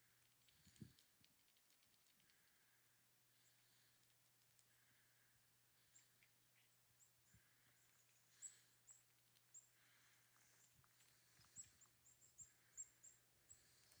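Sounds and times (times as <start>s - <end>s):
small birds calling: 0.0s - 14.0s
faint clicks: 0.2s - 2.6s, 3.5s - 4.8s.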